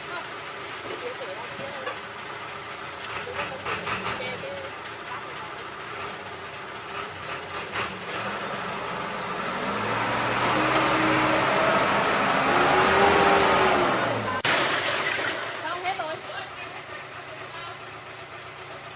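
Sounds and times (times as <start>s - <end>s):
engine running: 0.0s - 18.9s.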